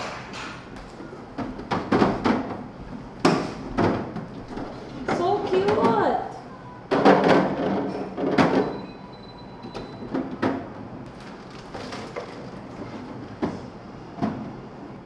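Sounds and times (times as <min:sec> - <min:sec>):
plastic pieces knocking: 0:11.1 - 0:13.0.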